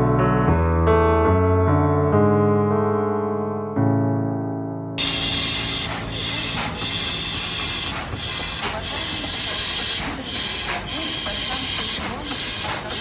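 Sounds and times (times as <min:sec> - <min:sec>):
electric train hiss and rumble: 0:05.0 - 0:13.0.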